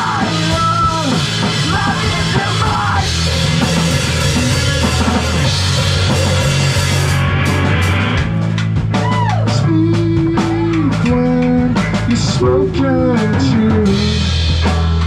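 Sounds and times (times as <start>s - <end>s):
drum hits: 0.0s - 9.4s
live rock band playing: 0.0s - 15.0s.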